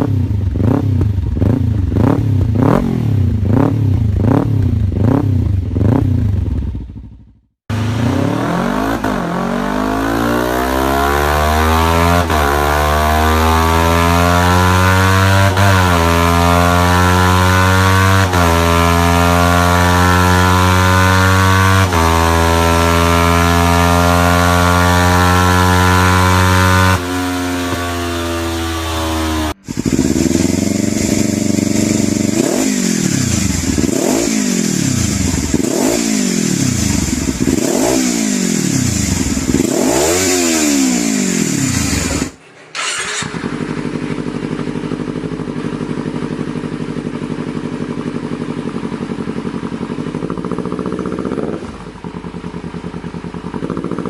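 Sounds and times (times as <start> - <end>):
motorcycle engine idling: 0.0 - 8.0, 29.6 - 37.7, 38.5 - 39.8, 41.3 - 54.0
motorcycle engine blipped: 0.0 - 54.0
motorcycle engine revving: 0.0 - 54.0.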